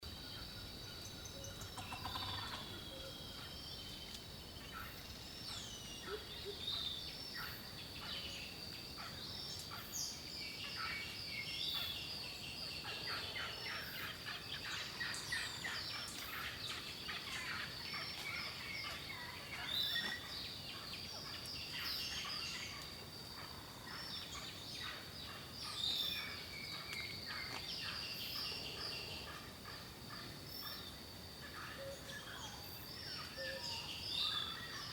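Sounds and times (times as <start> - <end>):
birdsong chorus: 0.0 - 34.9.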